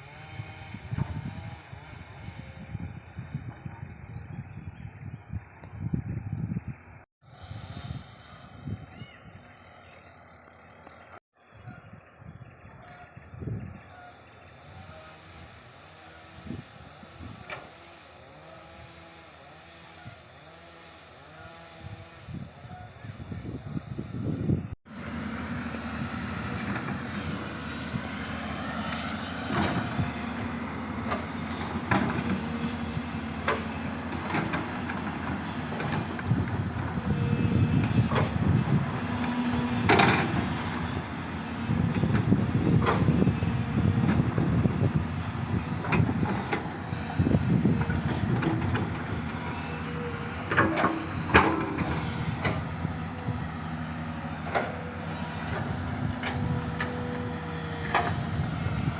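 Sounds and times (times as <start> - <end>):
diesel engine drone: 0.0 - 58.9.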